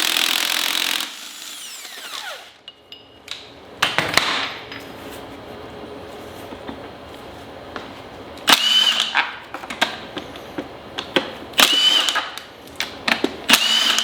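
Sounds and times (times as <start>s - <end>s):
power tool bursts: 0.0s - 2.6s, 8.5s - 9.2s, 11.6s - 12.4s, 13.5s - 14.0s.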